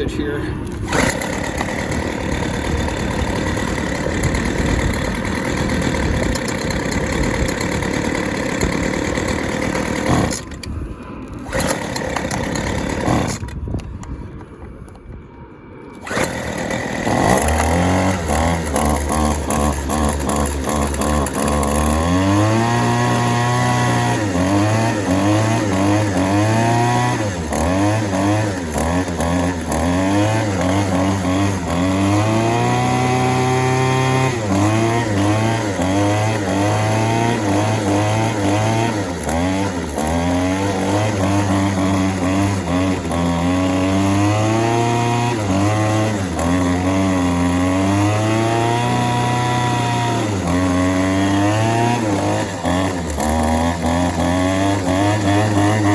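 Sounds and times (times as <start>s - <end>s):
string trimmer engine revving: 0.0s - 13.9s, 16.0s - 55.9s.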